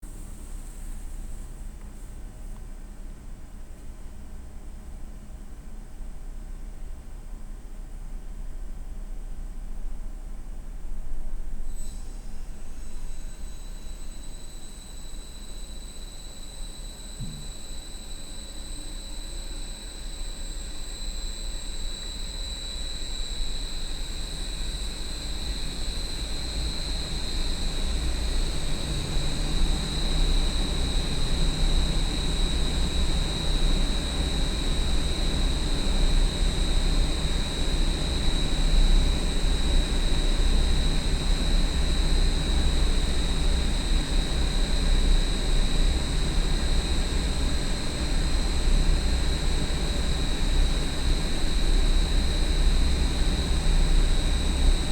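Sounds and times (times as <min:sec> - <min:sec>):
high-pitched fan whine: 0:00.0 - 0:54.9
exhaust fan deep rumble: 0:22.7 - 0:54.9.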